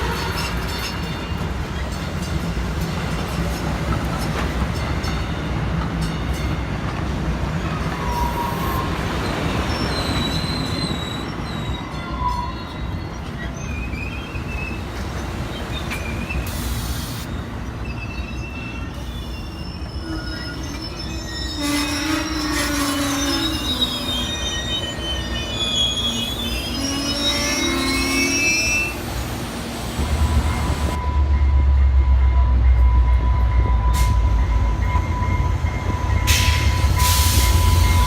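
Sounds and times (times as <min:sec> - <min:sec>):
train rumbling past: 0:00.0 - 0:38.0
wheels squealing: 0:07.6 - 0:29.5.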